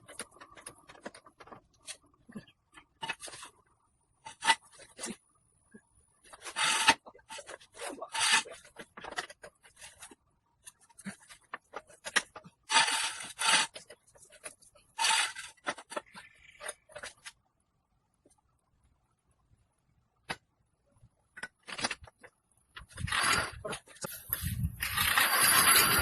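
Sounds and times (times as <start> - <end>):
rubbing and scraping strokes: 4.2 - 5.2, 6.2 - 17.3, 22.8 - 26.0.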